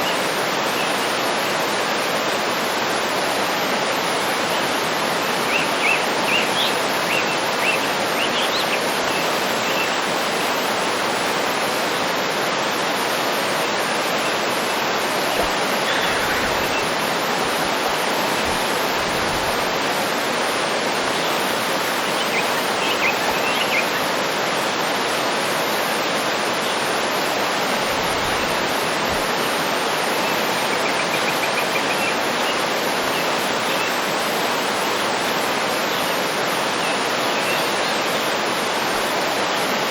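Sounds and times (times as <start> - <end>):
waterfall rushing: 0.0 - 39.9
birds chirping: 13.7 - 19.7.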